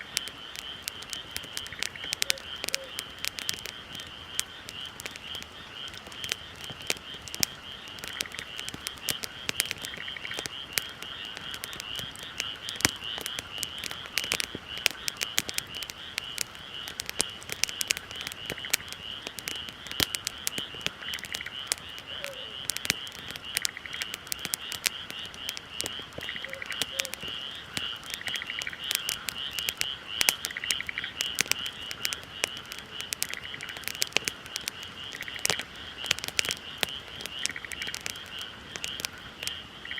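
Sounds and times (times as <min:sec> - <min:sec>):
bonfire crackling and popping: 0:00.0 - 0:39.9
high animal calls: 0:22.0 - 0:22.7, 0:26.3 - 0:27.4.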